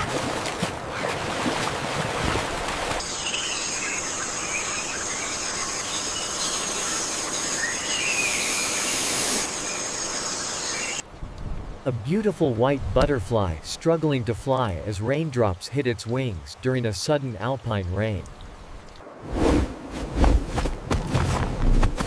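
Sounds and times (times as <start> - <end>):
rushing water: 0.0 - 11.1
high-pitched insect drone: 3.0 - 11.0.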